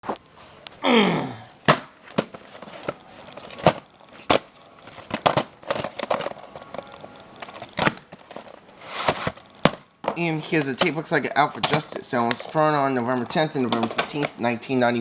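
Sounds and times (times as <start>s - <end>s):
plastic cassette case clicks: 5.0s - 8.5s.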